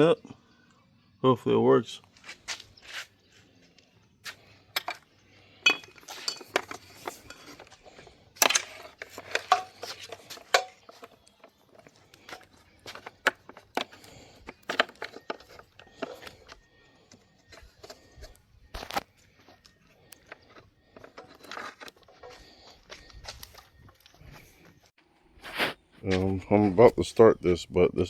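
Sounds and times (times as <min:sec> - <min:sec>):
metal tools clinking and knocking: 0:04.8 - 0:19.0.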